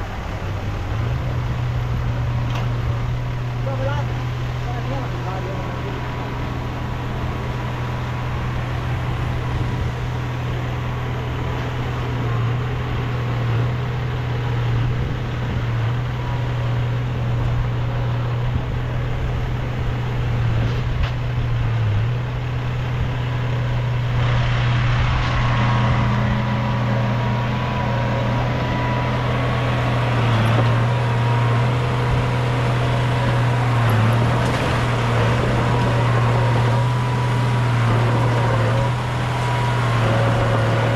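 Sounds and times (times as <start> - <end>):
heavy diesel engine droning: 0.0 - 40.9.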